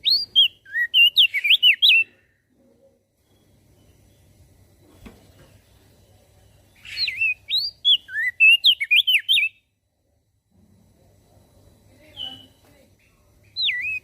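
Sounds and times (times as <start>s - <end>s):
bird singing whistled notes: 0.0s - 2.2s, 6.7s - 9.7s, 12.0s - 14.0s
faint low hum: 0.0s - 14.0s.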